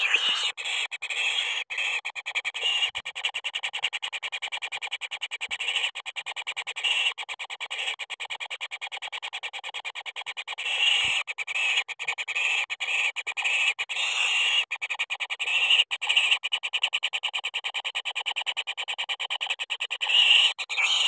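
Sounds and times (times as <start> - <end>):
pulsed animal chirring: 0.0 - 1.6, 20.0 - 21.0.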